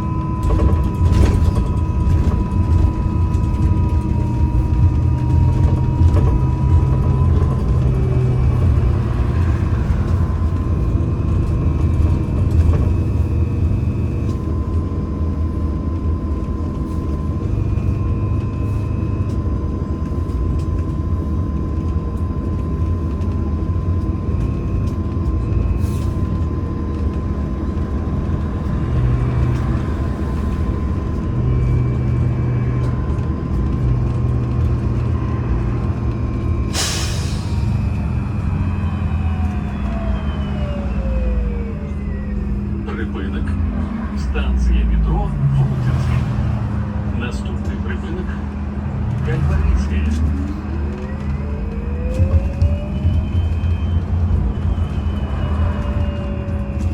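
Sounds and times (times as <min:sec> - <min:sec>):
trolleybus cabin rumble: 0:00.0 - 0:56.9
steady high whine: 0:35.0 - 0:56.9.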